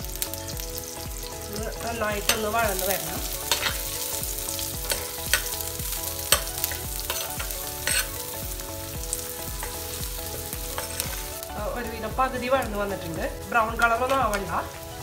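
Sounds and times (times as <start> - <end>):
vegetables sizzling in oil: 0.0 - 15.0
metal spoon scraping a pot: 6.3 - 8.2, 10.8 - 11.1.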